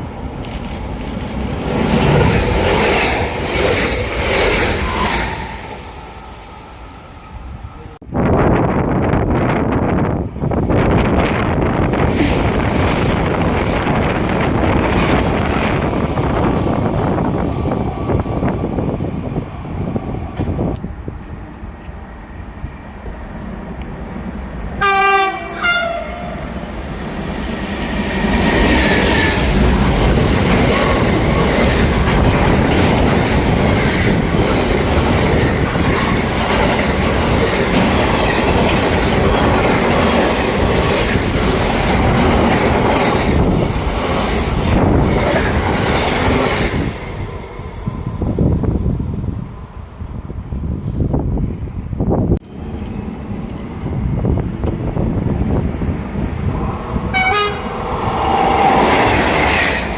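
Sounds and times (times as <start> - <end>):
train rumbling past: 0.0 - 59.9
train horn blast: 24.8 - 26.6, 57.1 - 58.8.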